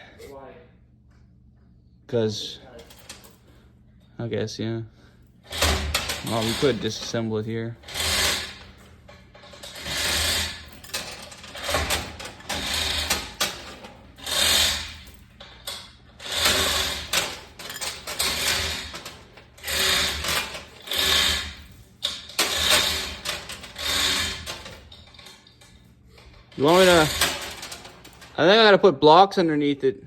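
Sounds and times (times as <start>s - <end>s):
rattling mechanical tool: 5.5s - 7.2s, 7.8s - 28.4s.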